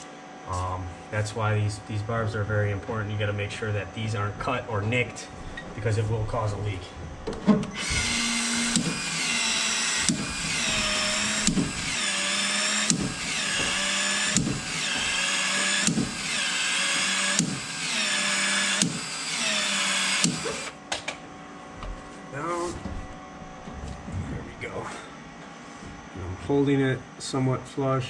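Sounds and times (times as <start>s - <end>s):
expansion tool motor cycling: 7.7s - 20.8s.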